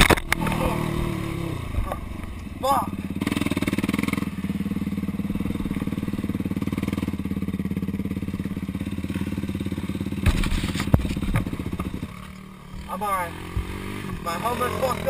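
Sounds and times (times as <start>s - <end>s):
quad engine running: 0.0s - 15.0s
heavy thump of quad landing: 10.1s - 12.0s.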